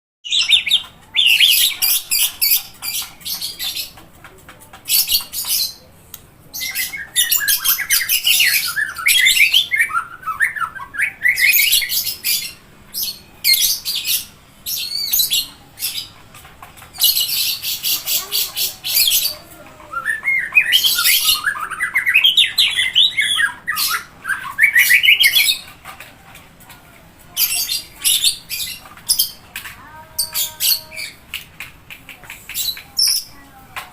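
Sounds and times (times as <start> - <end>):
songbird singing: 0.2 - 4.0, 6.5 - 16.2, 16.9 - 26.0.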